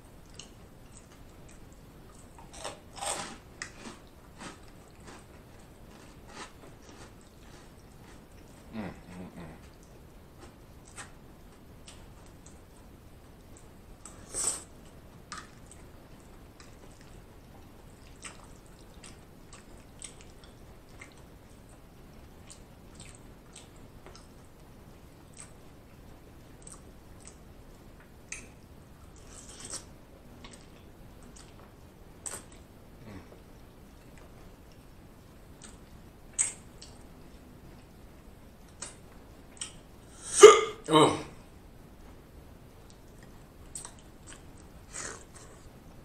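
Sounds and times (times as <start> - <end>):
wet mouth chewing smacks: 42.9 - 45.6.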